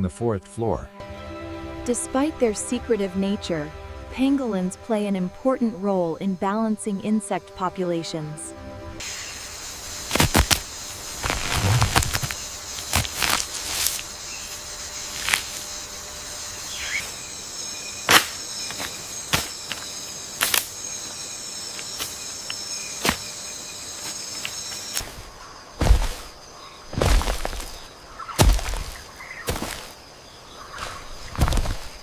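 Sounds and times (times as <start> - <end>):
insects chirring: 1.8 - 32.0
sharp snaps and crackles: 10.1 - 15.7, 18.1 - 20.8.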